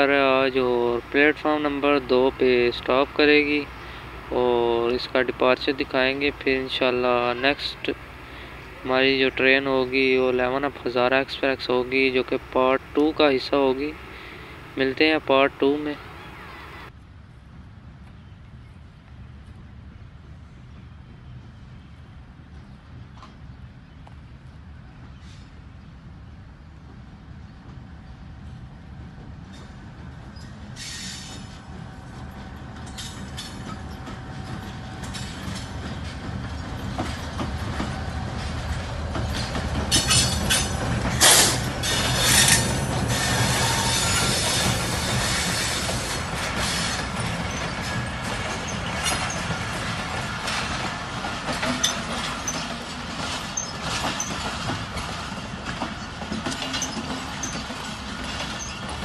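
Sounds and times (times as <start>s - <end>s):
diesel locomotive passing: 0.0s - 59.0s
clickety-clack of wheels on rail joints: 26.8s - 59.0s
wheels clattering and squealing: 29.5s - 59.0s.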